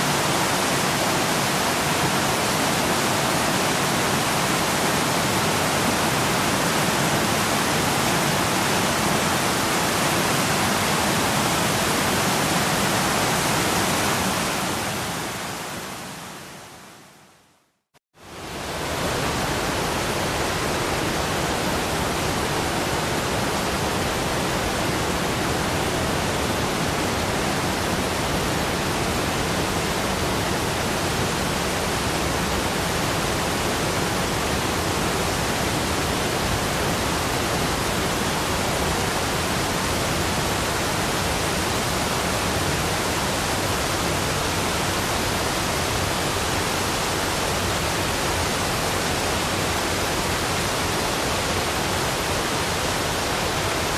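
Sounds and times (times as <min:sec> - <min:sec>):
running water rushing: 0:00.0 - 0:17.2.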